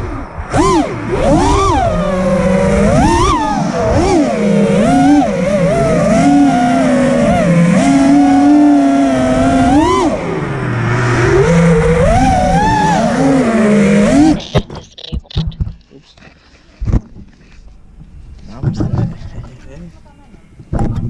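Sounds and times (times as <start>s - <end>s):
drone motors whining: 0.0s - 14.6s.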